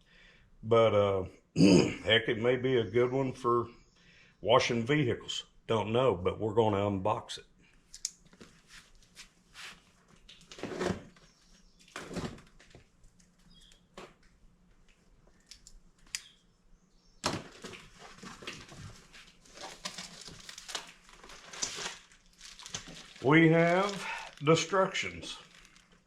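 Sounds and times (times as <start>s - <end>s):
cardboard and plastic rustling: 8.3s - 14.2s, 17.2s - 26.0s.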